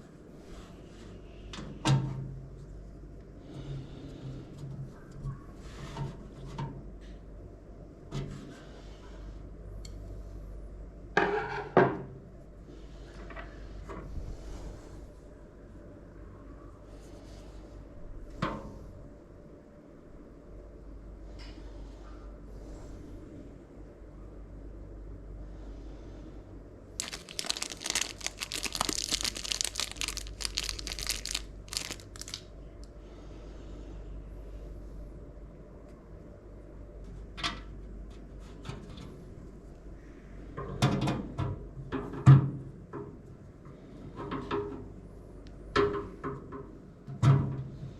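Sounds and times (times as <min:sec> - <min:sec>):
steady low hum: 0:00.0 - 0:11.2, 0:12.1 - 0:40.6
hands handling computer parts: 0:27.0 - 0:32.4
plastic packaging crinkling: 0:27.0 - 0:32.5.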